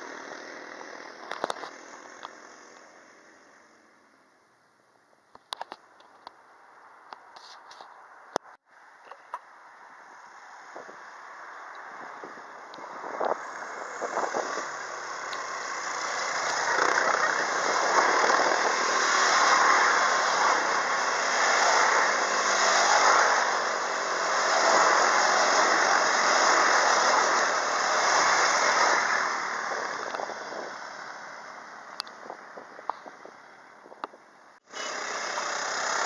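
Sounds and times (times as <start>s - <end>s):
quad bike engines running: 0.0s - 4.3s, 10.8s - 36.0s
wind noise: 10.6s - 34.3s.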